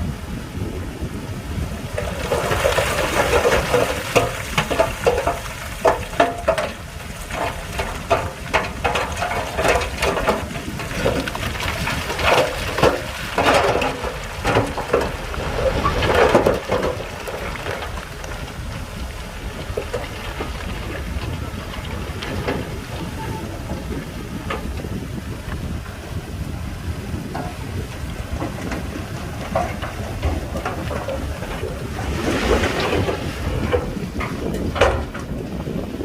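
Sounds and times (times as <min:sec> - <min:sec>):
bulldozer low rumble: 0:00.0 - 0:36.0
stones crunching and clattering: 0:02.0 - 0:24.7
rock cracking: 0:02.0 - 0:24.8.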